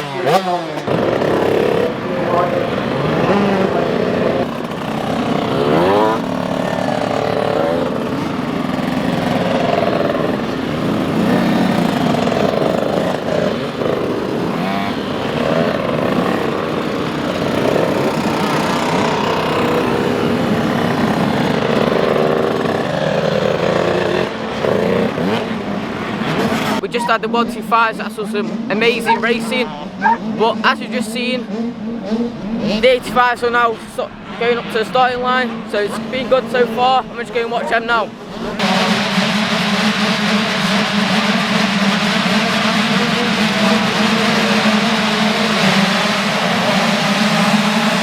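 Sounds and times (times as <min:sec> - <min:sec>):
motocross bike engines revving: 0:00.0 - 0:48.0.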